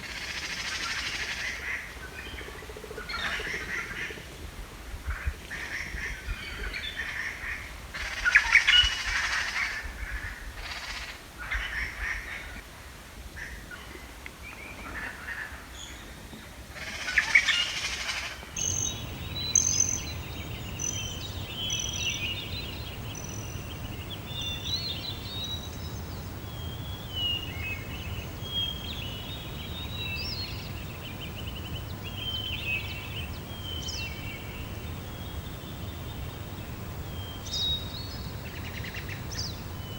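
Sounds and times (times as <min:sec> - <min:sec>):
harsh bird calls: 0:18.6 - 0:39.9
high chirping birdsong: 0:18.6 - 0:39.9
steady low rumble: 0:18.6 - 0:39.9.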